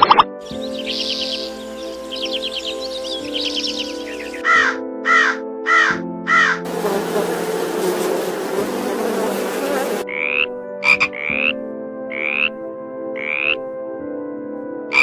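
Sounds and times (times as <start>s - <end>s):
dense buzzing: 6.7s - 10.0s.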